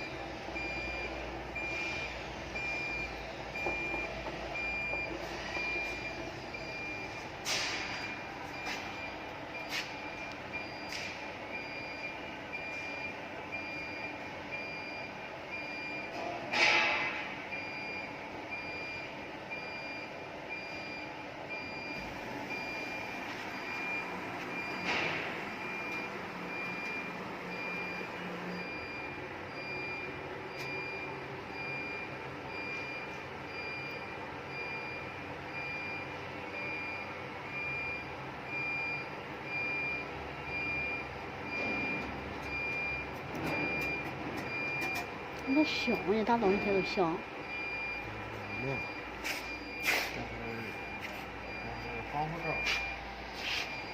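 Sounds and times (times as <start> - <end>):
electronic warning beeps: 0.0 - 53.9
steady background hum: 0.0 - 53.9.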